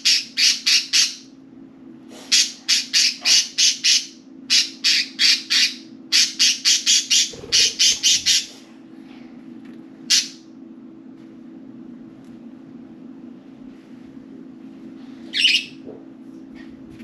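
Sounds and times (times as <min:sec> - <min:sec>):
steady low hum: 0:00.0 - 0:17.0
budgerigars squawking: 0:02.4 - 0:08.6.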